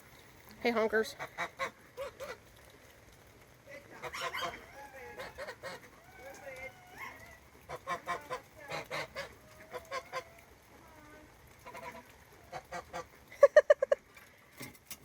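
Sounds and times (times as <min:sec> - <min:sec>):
geese honking: 0:04.0 - 0:10.5, 0:11.6 - 0:13.2.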